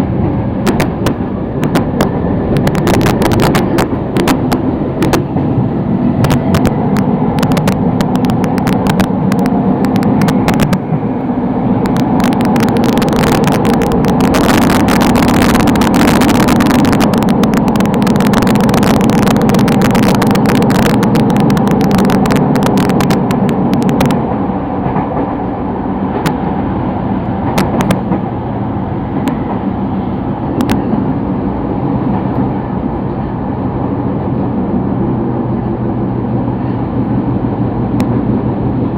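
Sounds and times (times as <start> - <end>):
train rumbling on rails: 0.0 - 38.9
dense crackling: 0.6 - 24.2.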